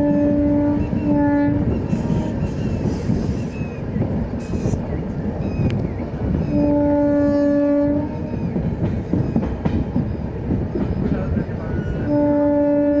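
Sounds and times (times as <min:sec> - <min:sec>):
train horn blast: 0:00.0 - 0:02.7, 0:06.4 - 0:08.4, 0:11.9 - 0:13.0
train rumbling on rails: 0:00.0 - 0:13.0.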